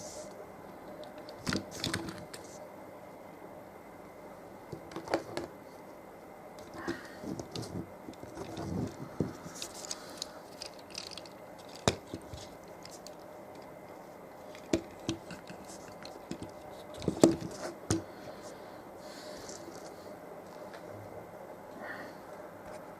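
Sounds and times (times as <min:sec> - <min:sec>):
packaging rustling: 0:06.7 - 0:13.8.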